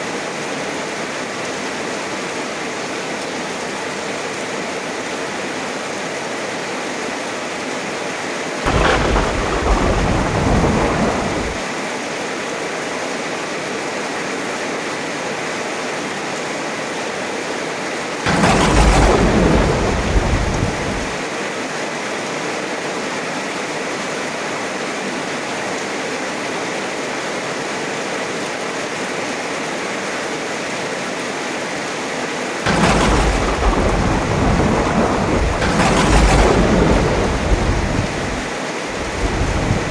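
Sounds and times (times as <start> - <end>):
thunder rumbling: 8.7 - 11.7, 18.3 - 21.2, 32.7 - 39.9
heavy rain falling: 8.7 - 12.0, 17.9 - 21.4, 32.2 - 39.9.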